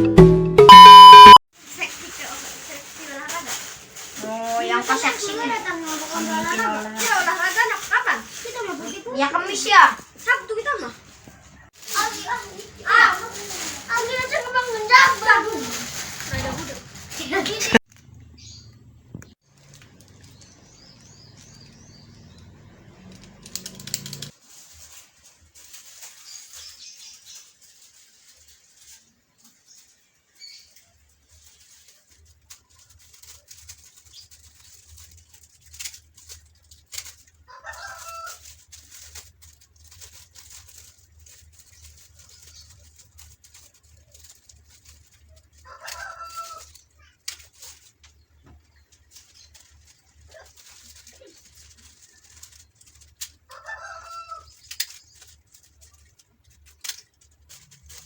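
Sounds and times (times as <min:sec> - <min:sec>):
clicks and rustling: 0:38.3 - 0:53.6, 0:54.5 - 0:58.0.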